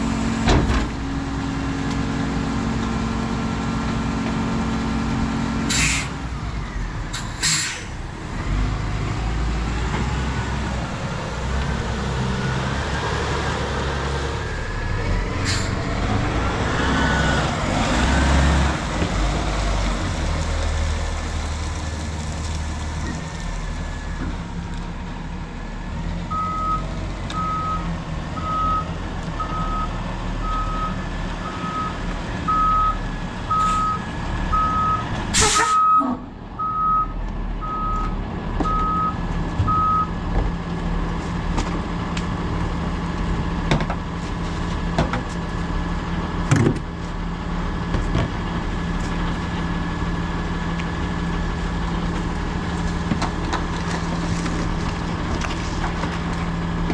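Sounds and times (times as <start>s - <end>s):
truck engine running: 0.0s - 5.6s
air brake hiss: 5.7s - 6.2s, 7.2s - 8.0s, 15.4s - 15.8s, 35.4s - 35.8s
reversing alarm beeping: 27.4s - 35.0s, 35.6s - 40.1s.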